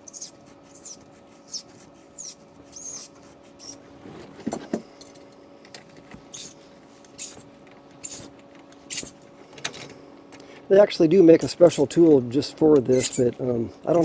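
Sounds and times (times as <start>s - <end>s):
pliers scraping on wire: 8.9s - 9.1s, 12.8s - 14.0s.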